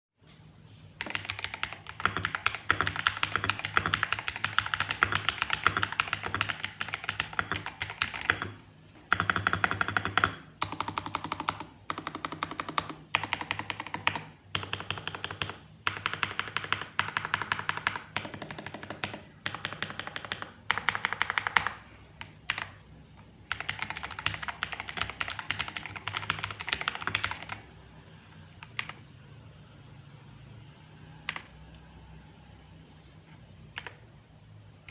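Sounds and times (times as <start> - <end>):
fast typing on mechanical keyboard: 1.0 - 27.8, 28.6 - 29.1, 31.2 - 31.5.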